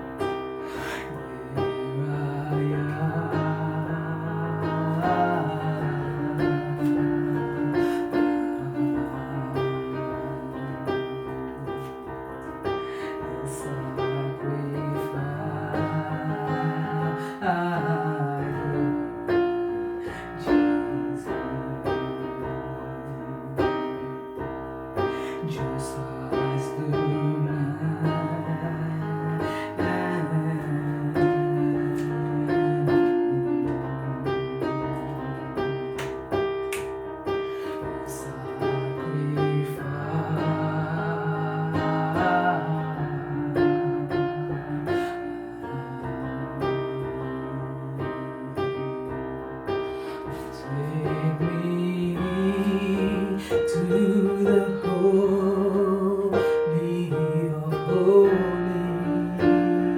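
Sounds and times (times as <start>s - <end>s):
keyboard playing slow held chords: 0.0s - 59.9s.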